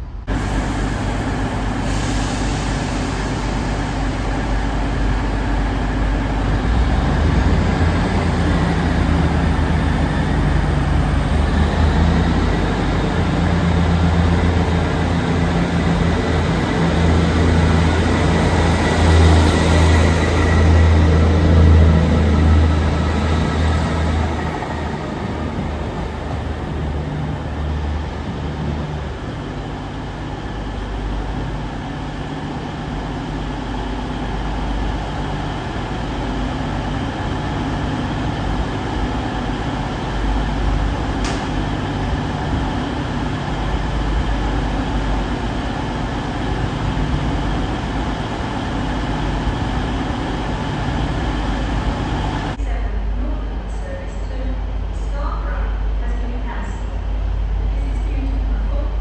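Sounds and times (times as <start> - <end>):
diesel train engines rumbling: 0.0 - 59.0
short click: 41.2 - 41.5.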